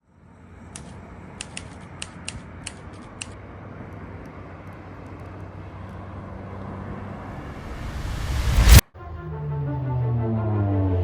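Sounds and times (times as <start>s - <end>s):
sharp mechanical clicks: 0.7s - 3.4s.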